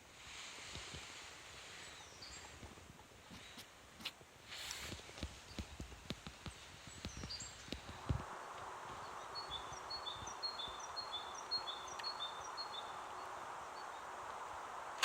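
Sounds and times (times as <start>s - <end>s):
steady background hiss: 0.0s - 15.0s
small songbird singing: 1.6s - 2.7s, 4.5s - 15.0s.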